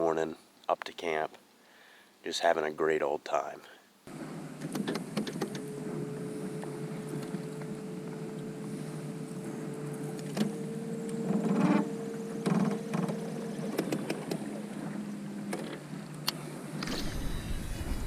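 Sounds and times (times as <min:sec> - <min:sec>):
small electric motor humming: 0:16.8 - 0:18.0.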